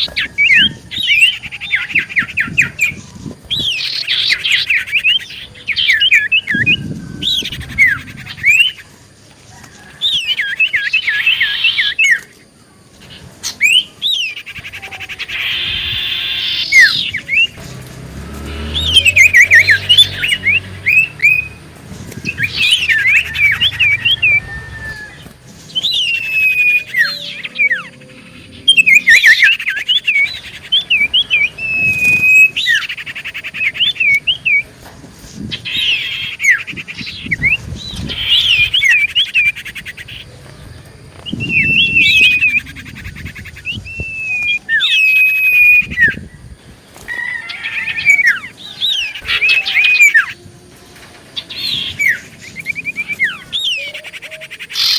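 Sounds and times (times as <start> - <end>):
bird singing: 0.0 - 54.9.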